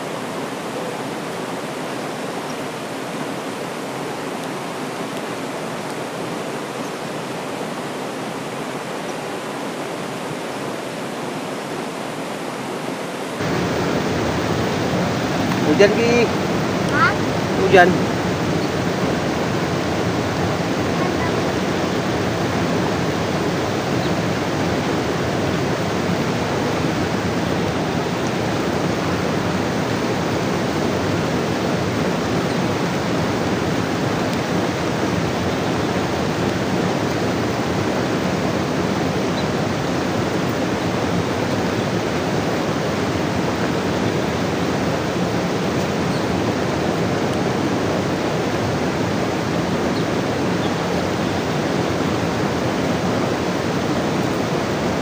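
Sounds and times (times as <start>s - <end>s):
rain and flowing river: 0.0s - 55.0s.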